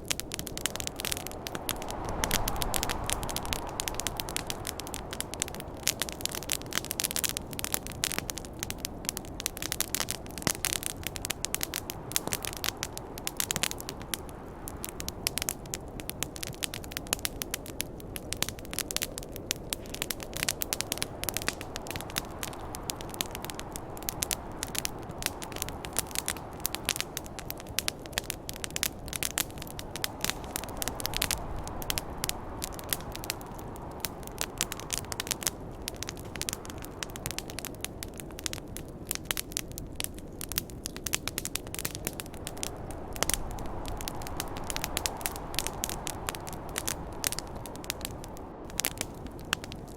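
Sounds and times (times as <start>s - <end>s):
wind rushing: 0.0s - 7.6s, 19.8s - 37.7s, 41.4s - 49.5s
wood fire crackling: 0.0s - 49.9s.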